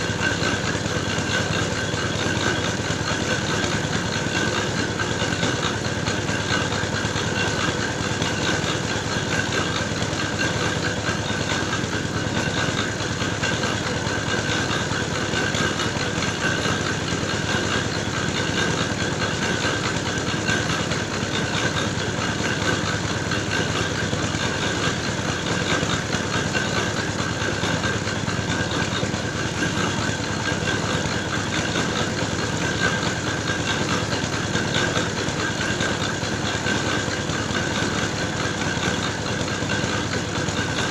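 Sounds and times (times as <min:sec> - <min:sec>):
clay-grinding machine engine running: 0:00.0 - 0:40.9.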